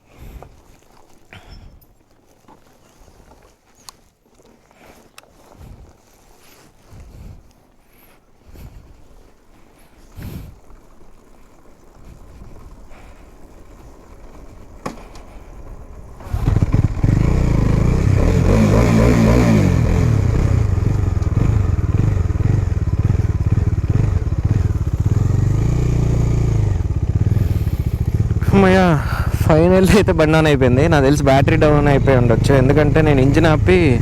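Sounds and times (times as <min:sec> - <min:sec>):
motorcycle engine starting and idling: 0:09.6 - 0:34.0.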